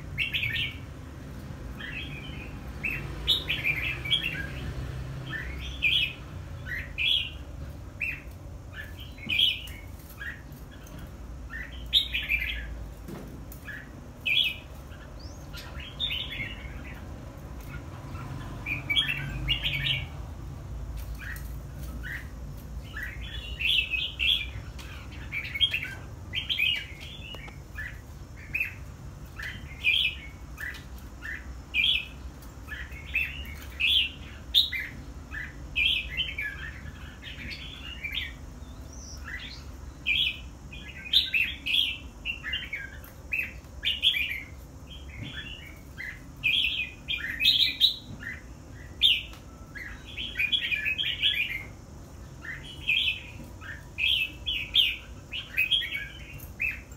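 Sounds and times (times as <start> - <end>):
bird singing warbled phrases: 0.0 - 56.9.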